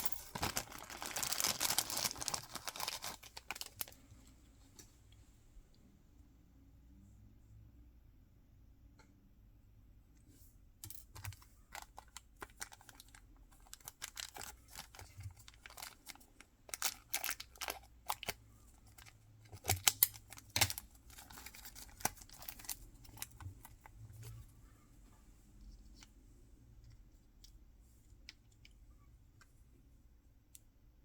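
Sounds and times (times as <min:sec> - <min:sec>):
packaging crinkling and tearing: 0:00.0 - 0:04.0, 0:11.2 - 0:23.8.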